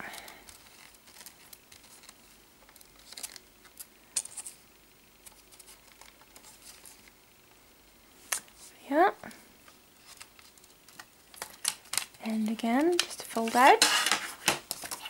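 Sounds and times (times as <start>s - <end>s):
plastic packaging clicking and rustling: 0.0s - 4.6s, 5.2s - 7.2s, 9.7s - 15.0s.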